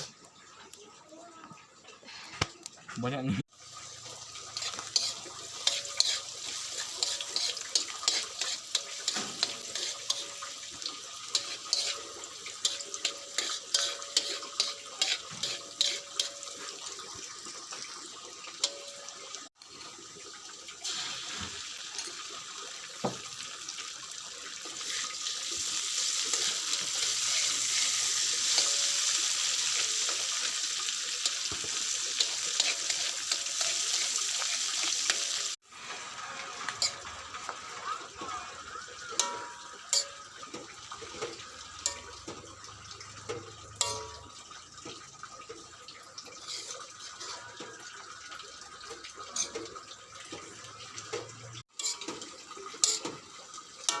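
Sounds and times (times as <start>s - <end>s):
running water: 0.0s - 54.0s
clattering and clicking in sink: 48.9s - 53.2s.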